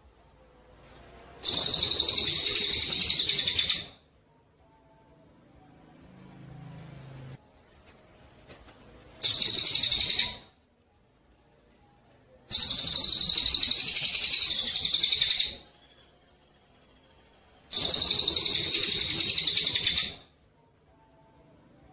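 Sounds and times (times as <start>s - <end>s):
songbird trilling: 1.4s - 4.0s, 9.2s - 10.5s, 12.5s - 16.1s, 17.7s - 20.2s.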